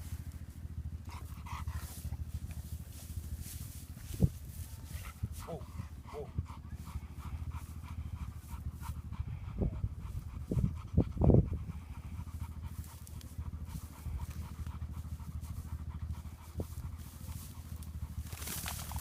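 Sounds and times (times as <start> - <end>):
dog panting: 0.0 - 19.0.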